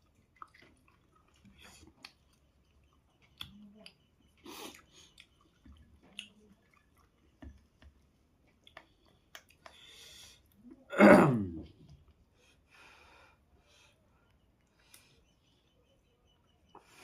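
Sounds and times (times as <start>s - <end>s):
person chewing food: 0.0s - 10.8s
mouth smacks and clicks: 0.3s - 9.9s.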